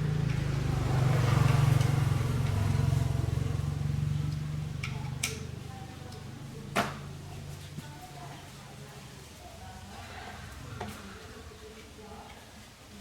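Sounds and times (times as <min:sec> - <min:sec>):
lawn mower engine running: 0:00.0 - 0:05.6.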